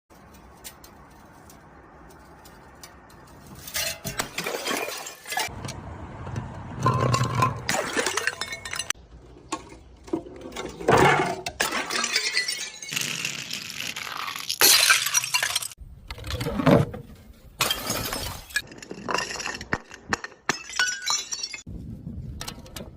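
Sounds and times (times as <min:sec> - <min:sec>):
glass shards clinking: 0:00.2 - 0:05.5, 0:06.8 - 0:09.0, 0:11.5 - 0:15.8, 0:17.6 - 0:21.7
glass bottles breaking: 0:03.6 - 0:05.5, 0:06.8 - 0:09.0, 0:10.9 - 0:15.8, 0:17.6 - 0:21.7.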